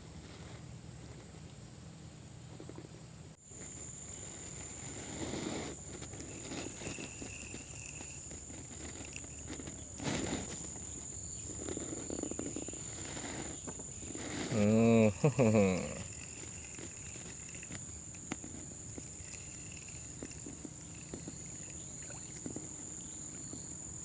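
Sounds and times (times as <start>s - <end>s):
insects buzzing: 0.6s - 24.0s
handling noises: 3.5s - 23.8s.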